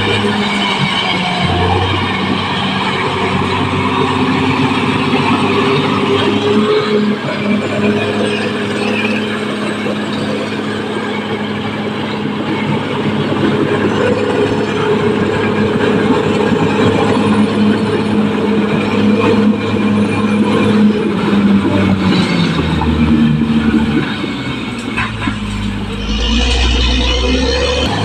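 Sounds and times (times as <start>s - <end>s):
bulldozer diesel engine running: 0.0s - 28.0s.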